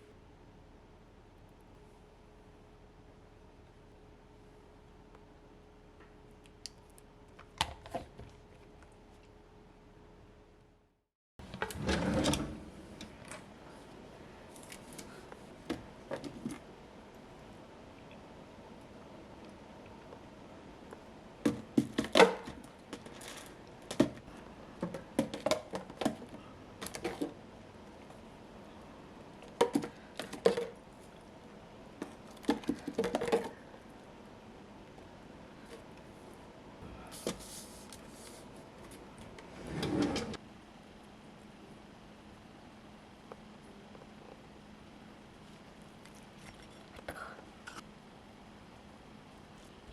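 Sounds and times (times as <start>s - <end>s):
kitchen items knocking and clicking: 24.8s - 27.4s, 29.5s - 30.8s, 32.0s - 33.6s.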